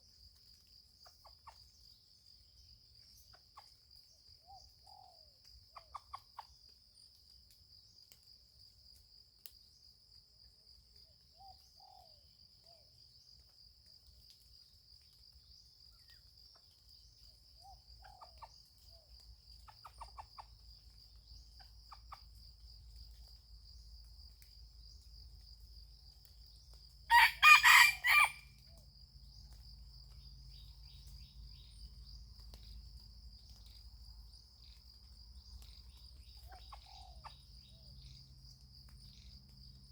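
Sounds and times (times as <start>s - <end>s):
rooster crowing: 27.1s - 28.6s.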